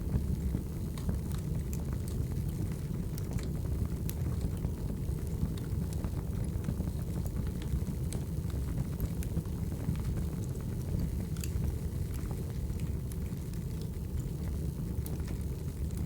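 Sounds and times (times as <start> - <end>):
crackles and pops from logs: 0.4 - 6.3, 10.0 - 16.0.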